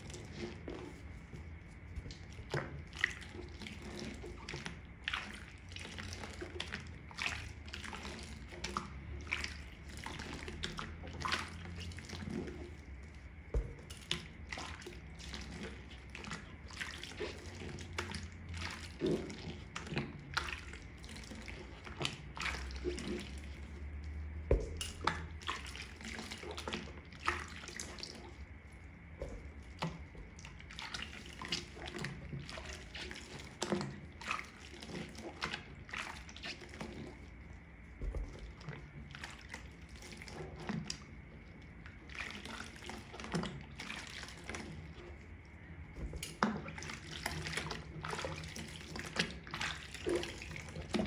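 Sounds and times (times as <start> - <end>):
water dripping and splashing: 0.0 - 51.0
wet sponge squishing: 0.0 - 51.0.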